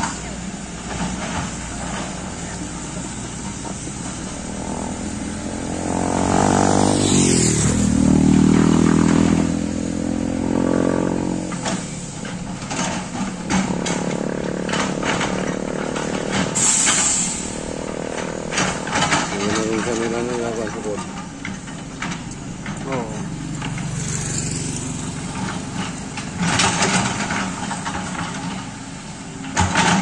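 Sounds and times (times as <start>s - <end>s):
engine running: 0.0s - 30.0s
knocks and clanks: 10.4s - 24.1s, 24.9s - 30.0s.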